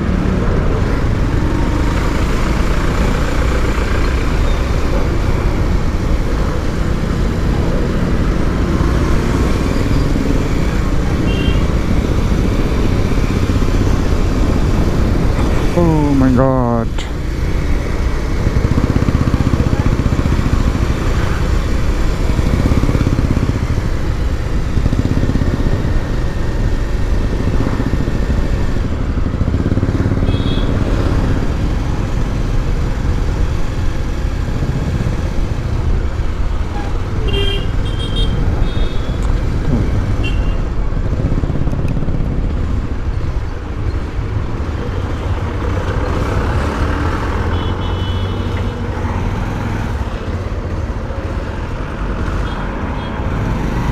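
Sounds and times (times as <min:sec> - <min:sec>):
motorcycle engine rumble: 0:00.0 - 0:46.2
vehicle horn beeps: 0:11.2 - 0:11.7, 0:47.5 - 0:48.4.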